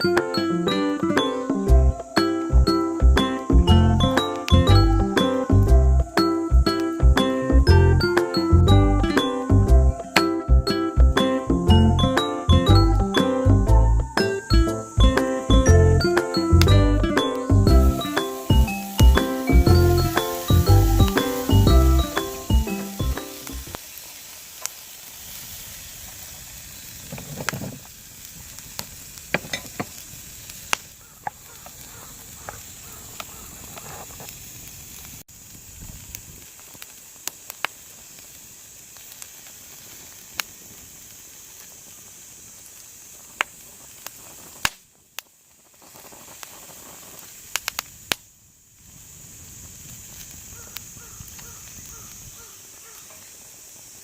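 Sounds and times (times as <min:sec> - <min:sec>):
wood fire popping and crackling: 0:00.0 - 0:54.0
beef sizzling in a pan: 0:14.3 - 0:54.0.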